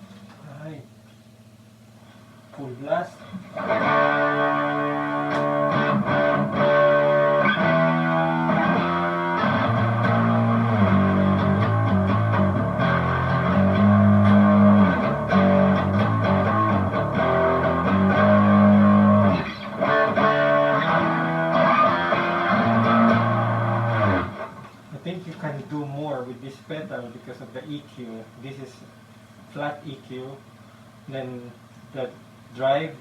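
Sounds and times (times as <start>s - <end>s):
distorted electric guitar: 3.2s - 24.9s.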